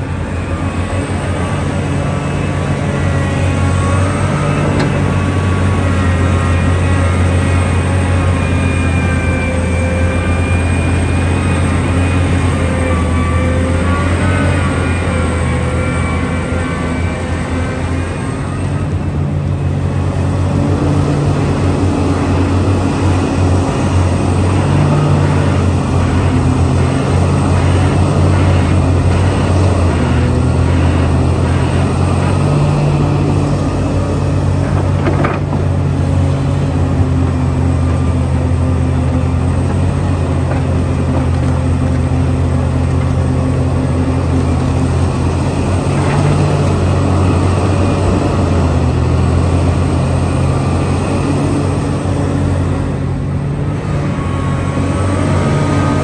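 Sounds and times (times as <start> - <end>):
heavy machine engine droning: 0.0 - 56.0.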